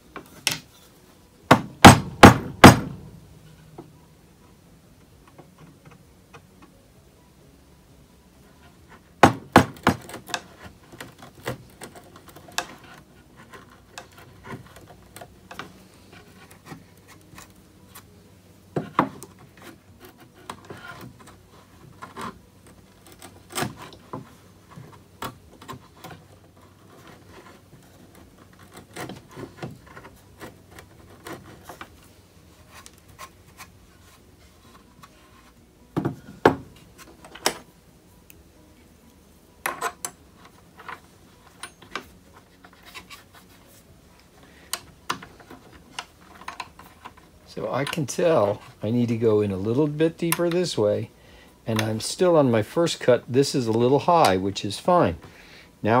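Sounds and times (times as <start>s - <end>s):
knocks on wood: 1.5s - 3.0s, 9.2s - 10.1s.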